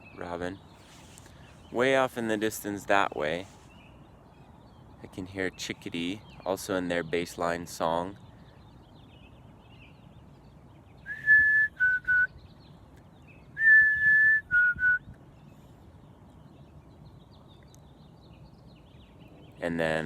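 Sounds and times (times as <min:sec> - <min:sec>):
person whistling bird song: 0:11.0 - 0:12.4, 0:13.5 - 0:15.2.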